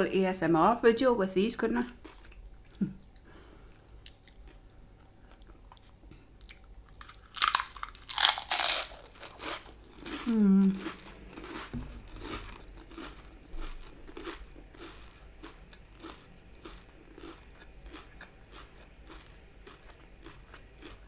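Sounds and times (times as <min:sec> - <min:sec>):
person chewing crunchy food: 0:01.9 - 0:21.0.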